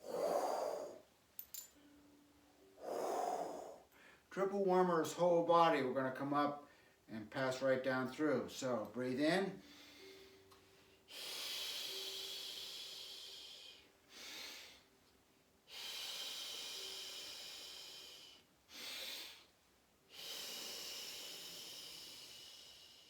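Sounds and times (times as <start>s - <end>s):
person breathing out with hiss: 0.0s - 1.0s, 2.8s - 4.3s, 11.1s - 14.9s, 15.7s - 19.5s, 20.1s - 23.0s
short in-breath: 0.0s - 1.0s, 2.8s - 4.3s.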